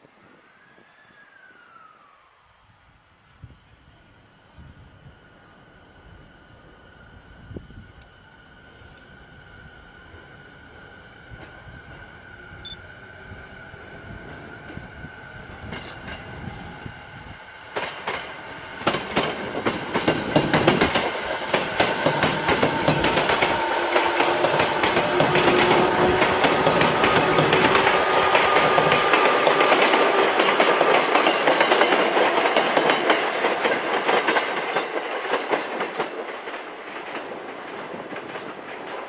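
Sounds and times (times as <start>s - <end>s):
train arriving: 0.0s - 39.0s
wheels clacking over rail joints: 17.7s - 39.0s.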